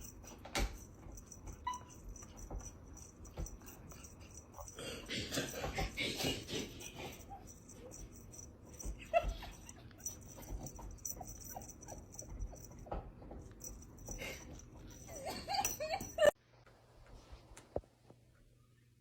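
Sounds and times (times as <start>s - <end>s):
dog whimpering: 1.4s - 2.0s, 9.0s - 12.9s.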